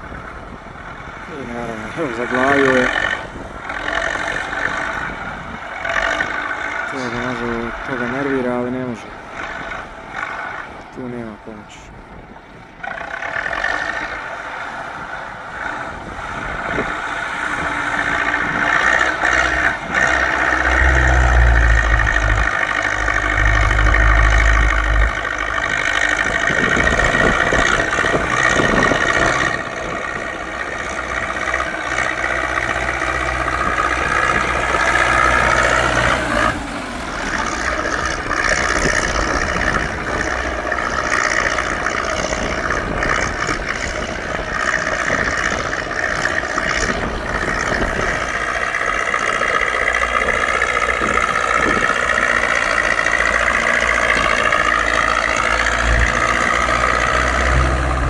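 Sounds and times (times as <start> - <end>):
tractor diesel engine under load: 0.0 - 58.0
deep rumble: 15.3 - 58.0.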